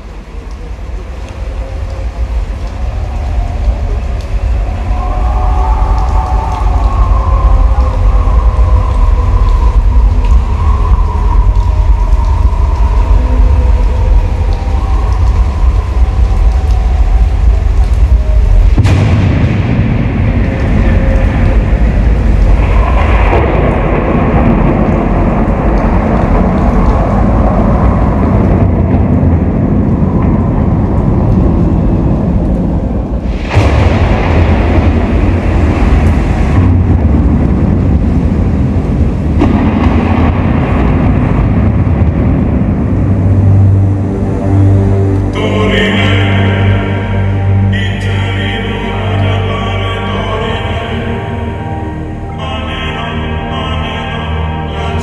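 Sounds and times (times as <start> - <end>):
slowly wavering sustained tones: 0.0 - 27.5, 43.3 - 55.0
deep rumbling bass drone: 0.0 - 55.0.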